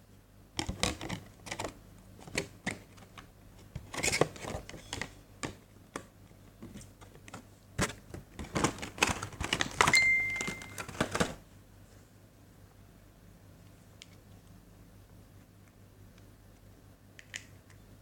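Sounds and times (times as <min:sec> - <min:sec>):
handling packaging clicks and rustles: 0:00.6 - 0:11.4.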